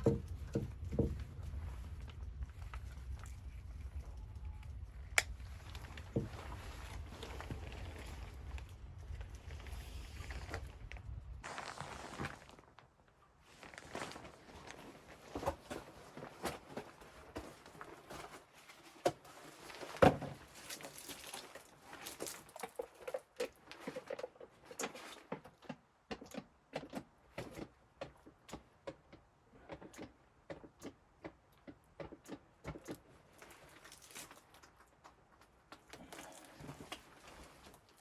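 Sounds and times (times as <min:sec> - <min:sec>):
irregular clicks and knocks: 0:23.8 - 0:33.1.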